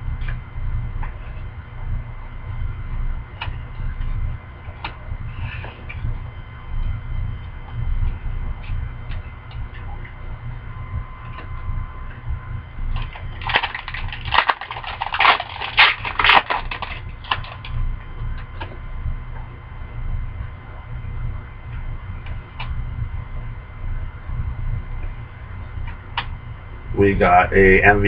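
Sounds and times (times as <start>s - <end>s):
steady low hum: 0.0s - 28.0s
wrapper crinkling: 13.2s - 17.7s.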